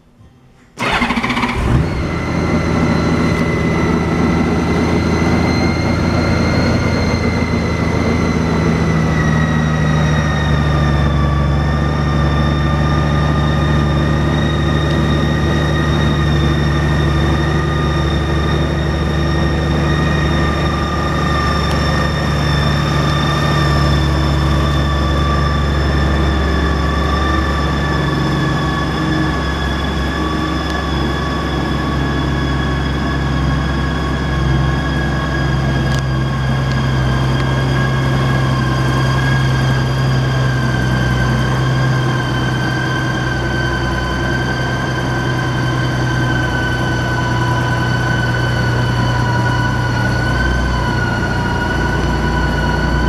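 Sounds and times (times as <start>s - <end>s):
high whine: 0.0s - 53.0s
motorcycle engine starting and idling: 0.5s - 31.6s.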